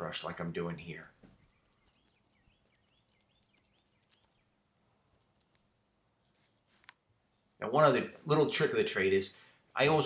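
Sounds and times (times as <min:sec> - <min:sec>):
faint bird chirps: 0:01.3 - 0:07.6.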